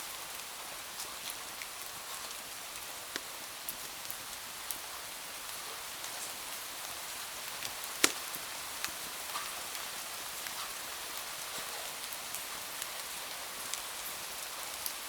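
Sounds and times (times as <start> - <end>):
wood fire crackling: 6.0 - 11.2.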